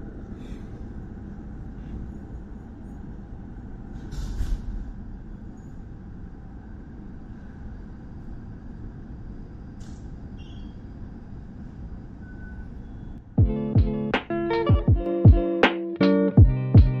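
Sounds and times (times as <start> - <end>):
train equipment rumble: 0.0 - 13.3.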